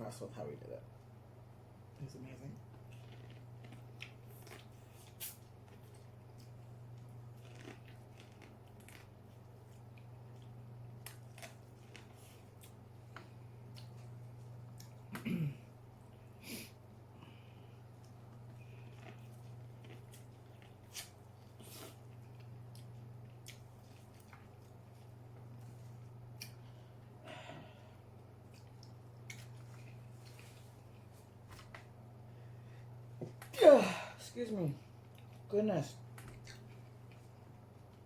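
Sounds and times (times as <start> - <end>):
steady low hum: 0.0 - 38.0
mouth chewing and smacking: 2.6 - 15.2, 18.0 - 26.6, 28.4 - 31.0, 36.1 - 38.0.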